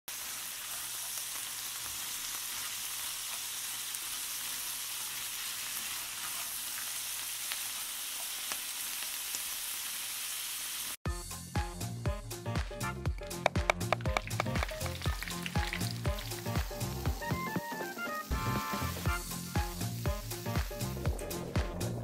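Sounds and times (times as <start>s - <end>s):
crayfish sizzling in skillet: 0.1s - 11.0s, 13.9s - 21.9s
music with a beat: 11.1s - 22.0s.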